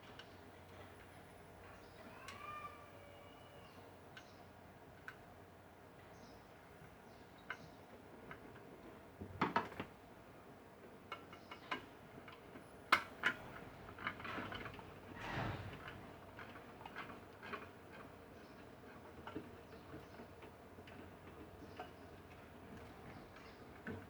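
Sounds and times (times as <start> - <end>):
short scraping: 15.1 - 16.2.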